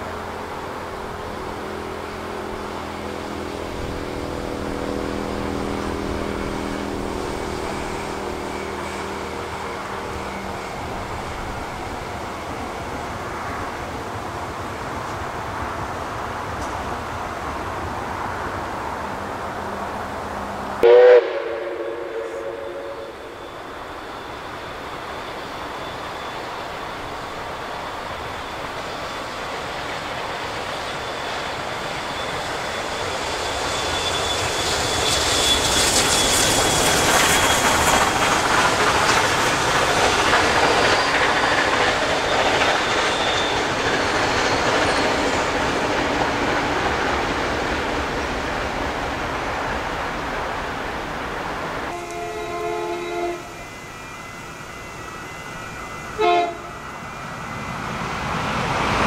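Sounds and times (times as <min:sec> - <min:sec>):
train wheels rumbling and clattering: 0:00.0 - 0:59.0
train horn blast: 0:20.8 - 0:23.5, 0:51.9 - 0:53.6, 0:56.1 - 0:56.8
thin high whine: 0:20.8 - 0:45.7, 0:51.9 - 0:58.6.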